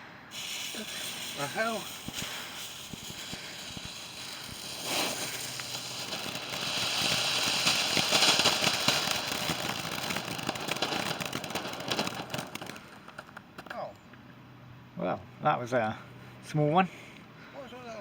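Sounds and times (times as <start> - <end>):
firework hissing and crackling: 0.0 - 13.4.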